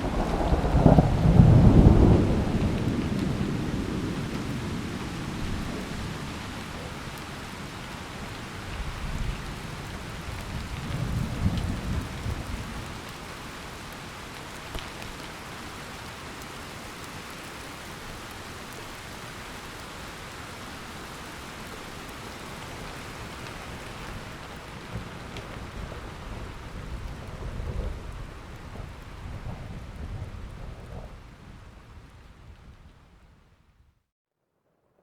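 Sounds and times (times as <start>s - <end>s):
thunder rumbling: 0.0s - 7.0s, 23.7s - 32.9s
heavy rain falling: 0.0s - 33.2s.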